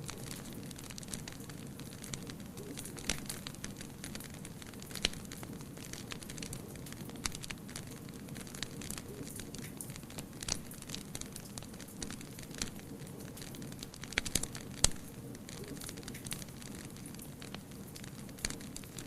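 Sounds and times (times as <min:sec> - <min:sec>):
sharp pops and snaps: 0:00.0 - 0:19.0
wood fire crackling: 0:00.0 - 0:19.0.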